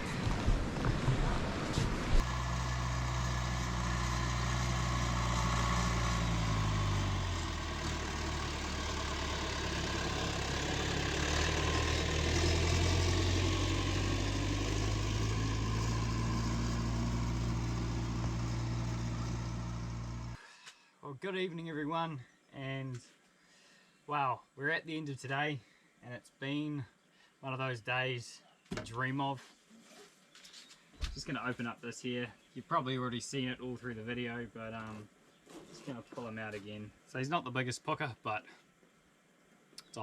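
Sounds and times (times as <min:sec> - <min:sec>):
engine running: 0:00.0 - 0:20.4.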